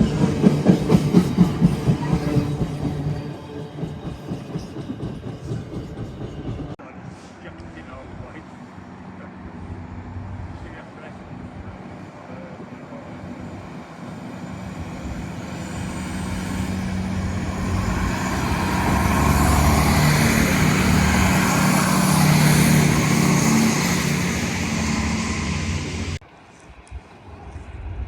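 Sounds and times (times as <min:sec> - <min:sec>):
train passing: 0:00.0 - 0:26.2.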